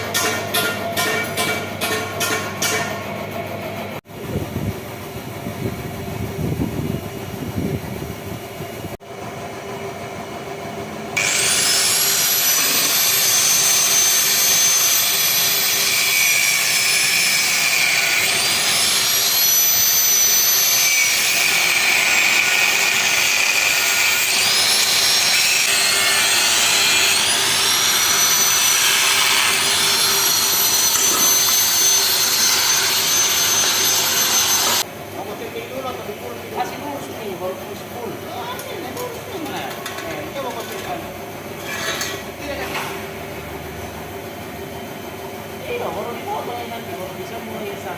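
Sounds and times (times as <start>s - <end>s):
angle grinder grinding metal: 11.2s - 34.9s.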